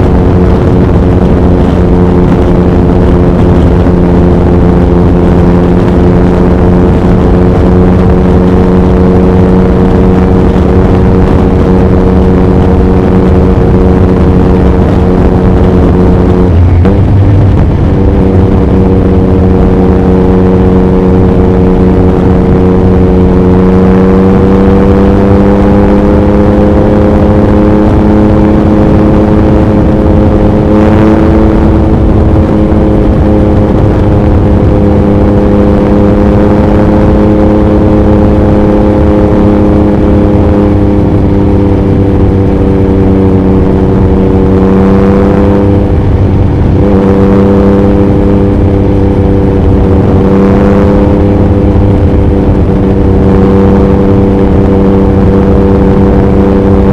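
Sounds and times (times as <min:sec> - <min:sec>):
motorcycle engine cruising: 0:00.0 - 0:56.9
wind buffeting microphone: 0:13.0 - 0:23.0.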